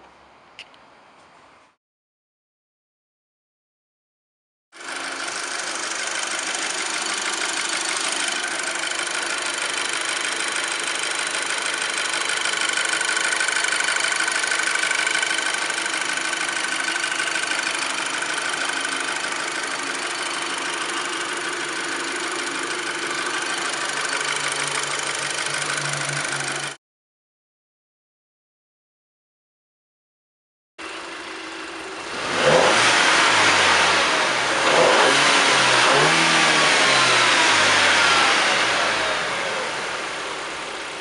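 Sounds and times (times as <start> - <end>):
car engine idling: 4.8 - 26.8, 30.8 - 41.0.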